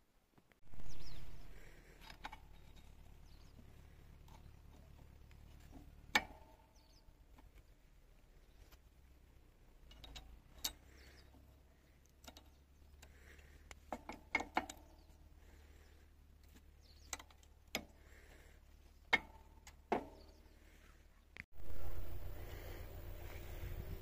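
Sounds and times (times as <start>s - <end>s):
faint low hum: 14.7s - 24.0s.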